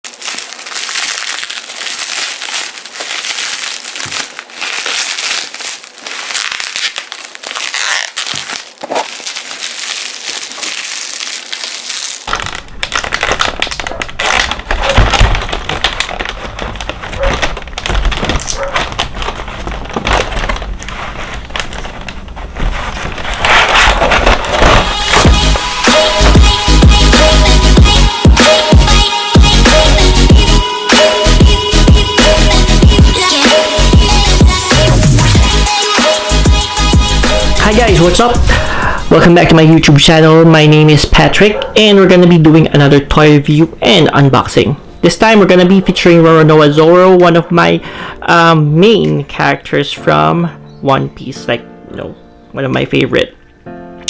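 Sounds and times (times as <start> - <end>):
plastic packaging crinkling: 0.0 - 27.8, 32.9 - 41.5.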